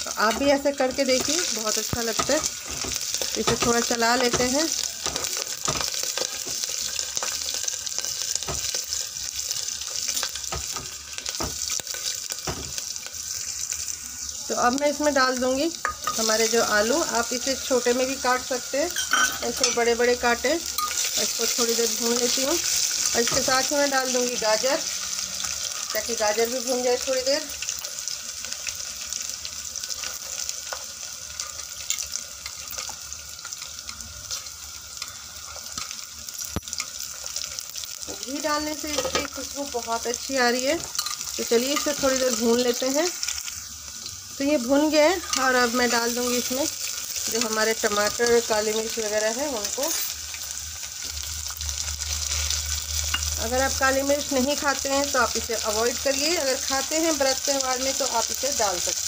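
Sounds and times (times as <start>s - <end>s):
food sizzling in hot oil: 0.0s - 59.0s
spoon stirring and knocking pot: 1.1s - 6.7s, 18.9s - 19.9s, 38.9s - 39.4s.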